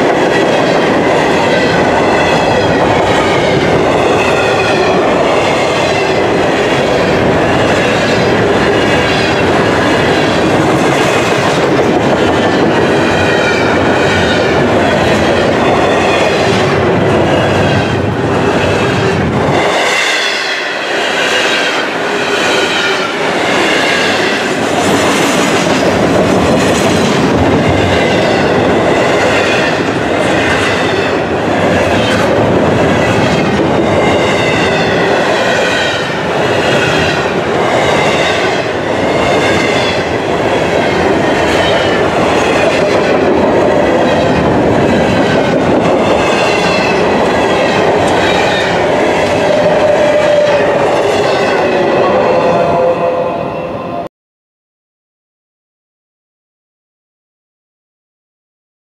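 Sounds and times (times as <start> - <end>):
freight train wheels rumbling: 0.0 - 54.1.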